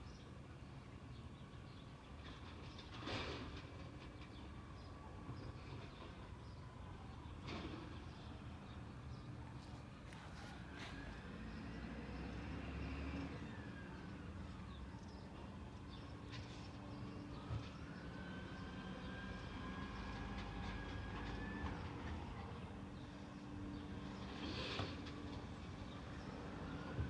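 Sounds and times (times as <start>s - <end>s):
truck whine: 9.4s - 14.7s.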